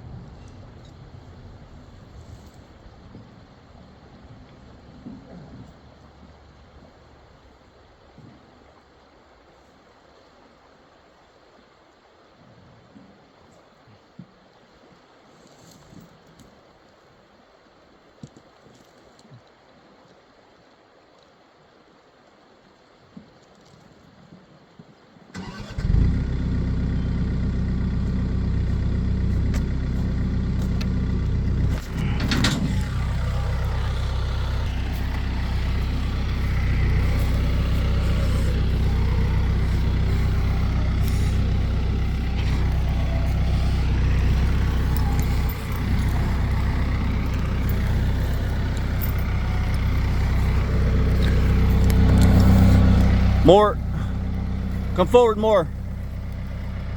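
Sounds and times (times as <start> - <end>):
vehicle engine starting and running: 25.4 - 56.9.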